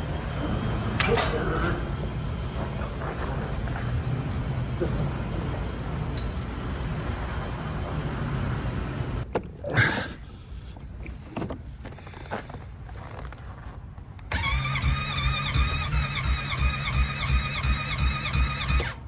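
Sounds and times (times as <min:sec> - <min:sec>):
engine cranking chugging: 0:00.0 - 0:09.3, 0:14.3 - 0:19.0
engine starter whining: 0:00.0 - 0:09.3, 0:14.3 - 0:19.0.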